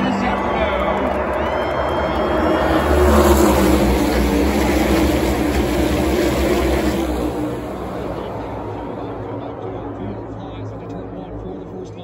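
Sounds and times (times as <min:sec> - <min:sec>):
race cars passing at full throttle: 0:00.0 - 0:12.0.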